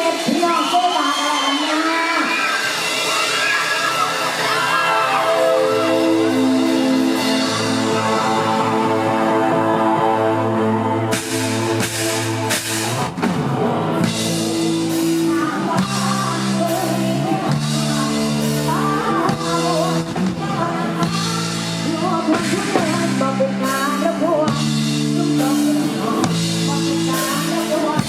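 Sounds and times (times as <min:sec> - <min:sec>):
live pop band music: 0:00.0 - 0:28.0
drum kit beat: 0:02.5 - 0:28.0
person singing lead: 0:13.8 - 0:28.0.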